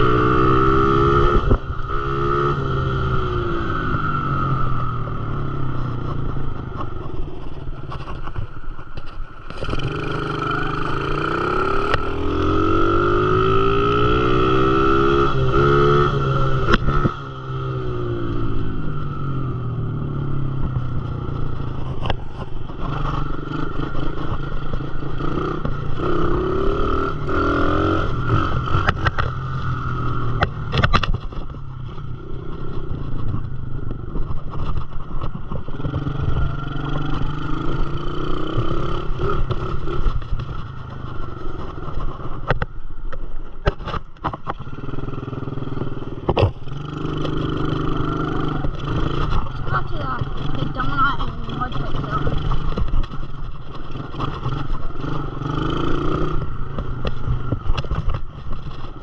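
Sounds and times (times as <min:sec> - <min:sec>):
dirt bike engine revving: 0:09.6 - 0:18.8, 0:35.8 - 0:40.2, 0:44.7 - 0:52.8.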